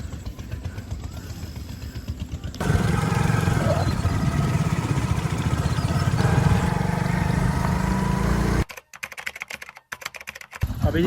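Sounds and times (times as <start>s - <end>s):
engine running: 0.0s - 8.7s.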